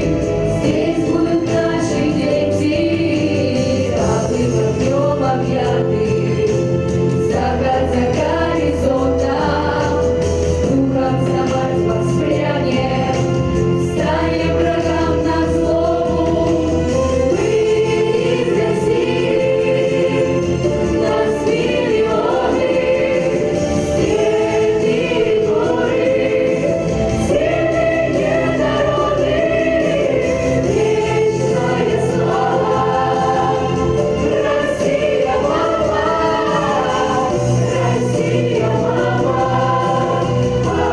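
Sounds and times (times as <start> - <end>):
children's choir singing: 0.0 - 40.9
instrumental accompaniment: 0.0 - 40.9.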